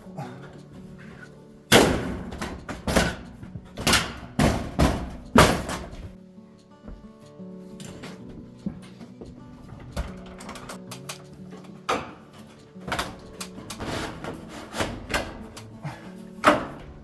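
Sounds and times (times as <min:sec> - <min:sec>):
background music: 0:00.0 - 0:17.0
metal panel thuds: 0:01.7 - 0:06.2.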